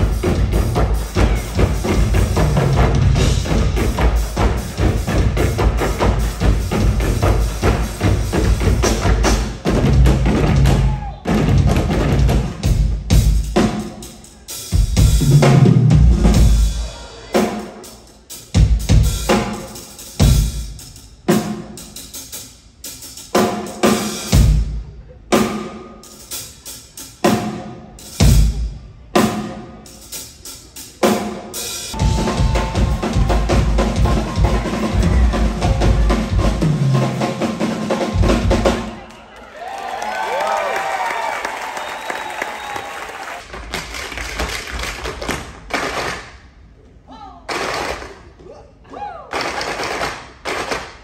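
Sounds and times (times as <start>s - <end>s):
drum kit hits: 0.0s - 14.0s, 31.9s - 38.9s.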